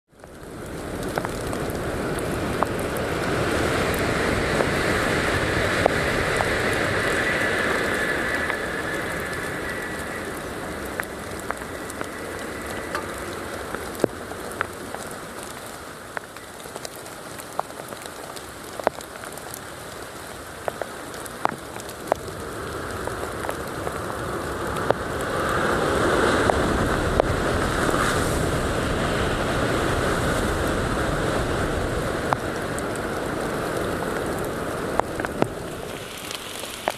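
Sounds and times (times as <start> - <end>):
heavy rain falling: 0.1 - 36.9
raindrops tapping close by: 0.1 - 36.9.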